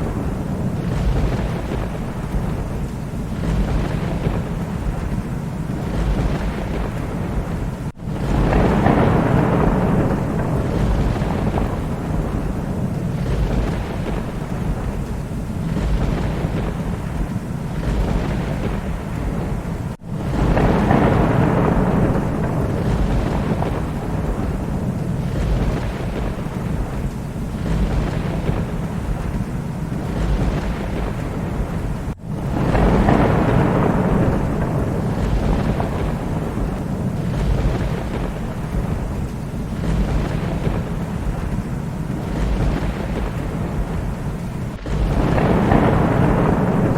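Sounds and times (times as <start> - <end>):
rolling thunder: 0.0 - 46.9
steady rain: 0.0 - 46.9.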